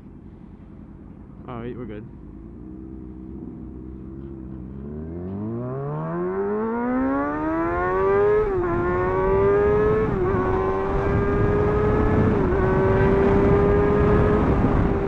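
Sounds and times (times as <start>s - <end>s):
motorcycle engine revving: 1.6s - 15.0s
wind noise: 8.3s - 15.0s.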